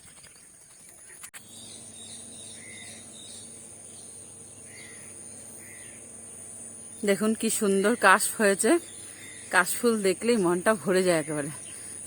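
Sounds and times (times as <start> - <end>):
bird chirps: 0.0 - 8.1
insects chirring: 0.2 - 12.0.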